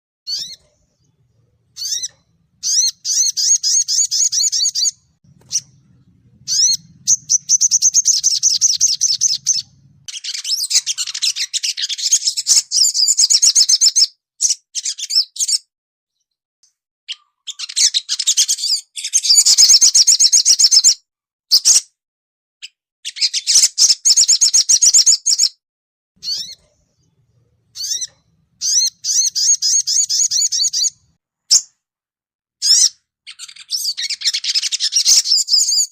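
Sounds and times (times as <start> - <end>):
songbird twittering: 0.3 - 15.6, 26.2 - 31.7, 32.6 - 35.9.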